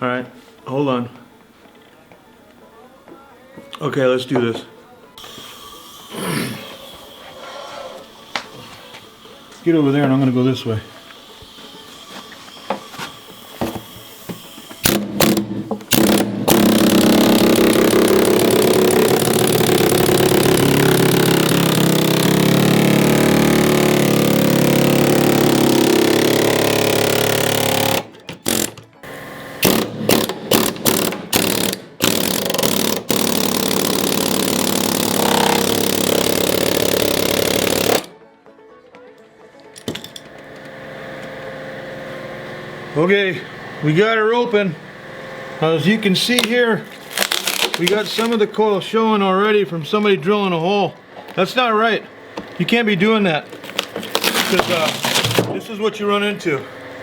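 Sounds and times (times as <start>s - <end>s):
pneumatic zip gun cutting metal: 5.2s - 8.2s, 12.9s - 38.1s, 53.6s - 55.5s.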